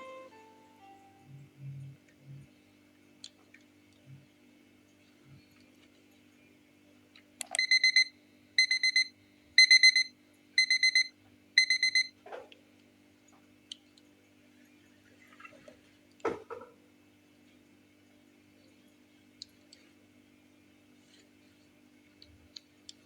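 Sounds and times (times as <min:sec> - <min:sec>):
electronic alarm beeping: 0:07.6 - 0:12.1.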